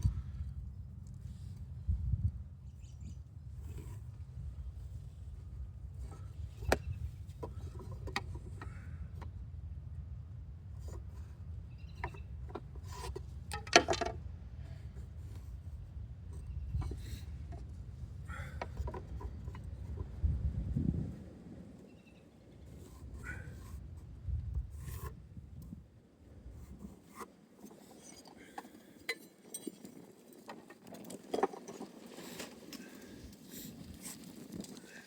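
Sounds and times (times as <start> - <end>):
wood knocking and rubbing: 12.8 - 14.2.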